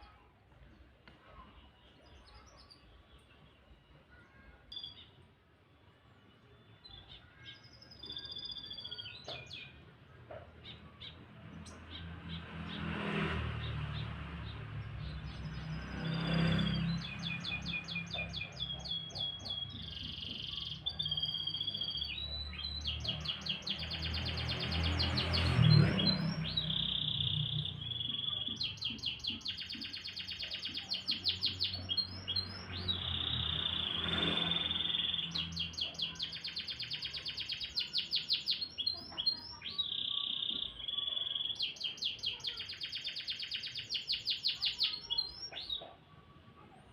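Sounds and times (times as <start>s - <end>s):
canary singing trills: 6.4s - 9.9s, 13.7s - 46.3s.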